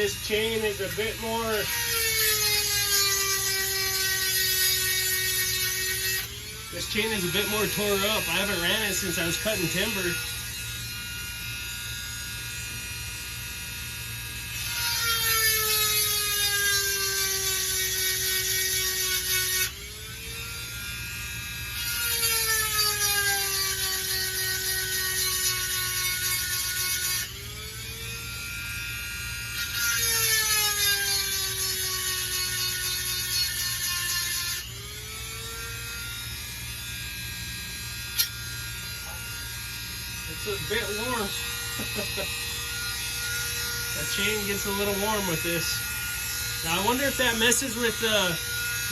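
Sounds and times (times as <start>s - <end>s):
rotary tool motor whine: 0.0s - 48.9s
sharp click: 38.2s - 38.4s
grinding stone hiss: 43.8s - 48.9s.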